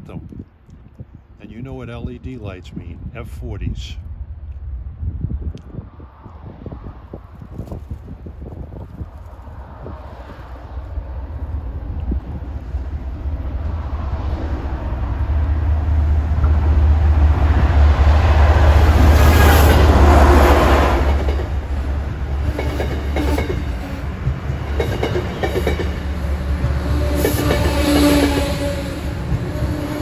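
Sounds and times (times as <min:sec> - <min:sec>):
diesel locomotive engine drone: 0:08.0 - 0:30.0
train wheels clicking over rail joints: 0:21.0 - 0:30.0.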